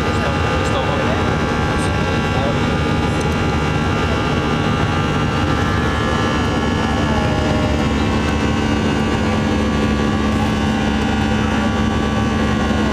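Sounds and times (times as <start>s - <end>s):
jet engines droning: 0.0s - 12.9s.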